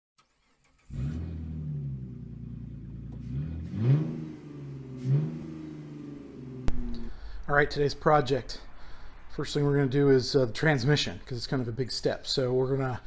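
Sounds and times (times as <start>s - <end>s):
car engine idling and revving: 0.5s - 7.5s.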